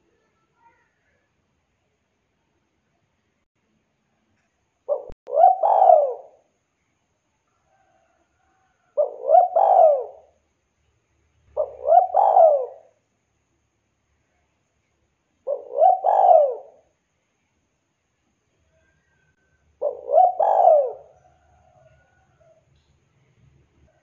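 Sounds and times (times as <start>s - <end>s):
dove cooing: 4.9s - 6.4s, 8.9s - 10.4s, 11.5s - 13.0s, 15.4s - 16.9s, 19.8s - 22.6s.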